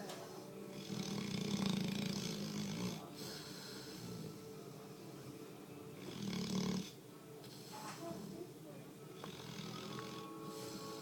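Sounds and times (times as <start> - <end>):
dog breathing: 0.0 - 5.4, 9.1 - 11.0
dog snoring: 0.0 - 8.4, 9.1 - 11.0.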